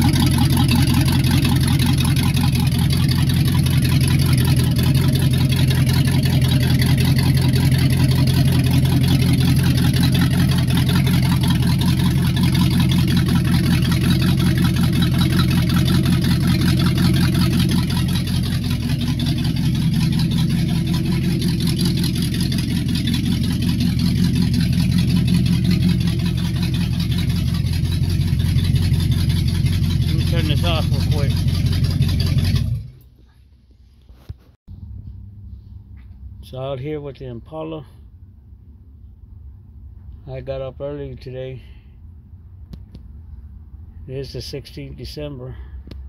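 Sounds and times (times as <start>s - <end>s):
car engine idling: 0.0s - 33.6s.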